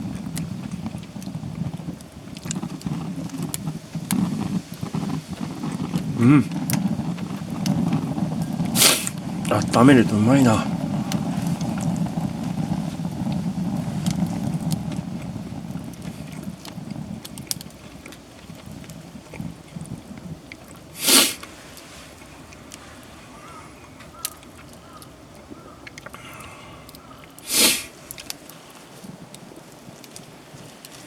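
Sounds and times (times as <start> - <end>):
campfire crackles: 0.0 - 31.0
sharp sniff: 8.8 - 9.1, 21.0 - 21.5, 27.4 - 28.0.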